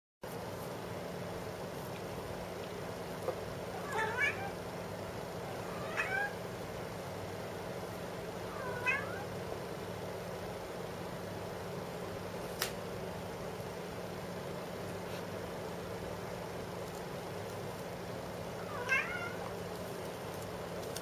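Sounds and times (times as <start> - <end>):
steady low hum: 0.2 - 21.0
cat meowing: 3.8 - 4.6, 5.5 - 6.4, 8.5 - 9.3, 18.6 - 19.5.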